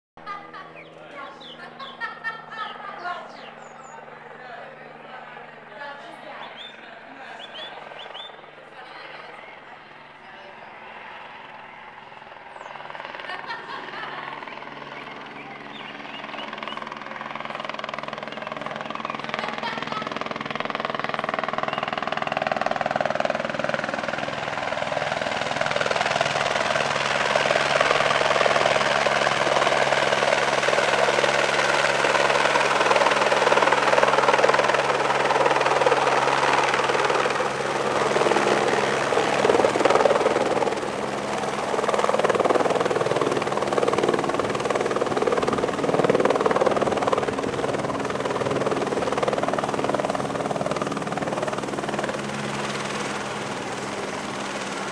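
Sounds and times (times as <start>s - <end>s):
helicopter rotor and engine: 0.2s - 54.9s.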